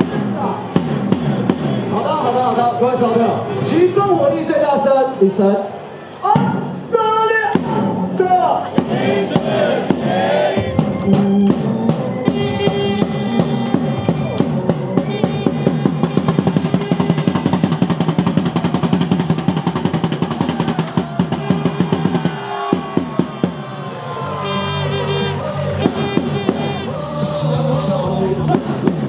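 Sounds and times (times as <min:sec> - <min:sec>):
drums beating into a drum roll: 0:00.0 - 0:02.0, 0:07.6 - 0:23.9, 0:25.8 - 0:27.0, 0:27.8 - 0:29.0
held sustained tones: 0:18.9 - 0:29.0.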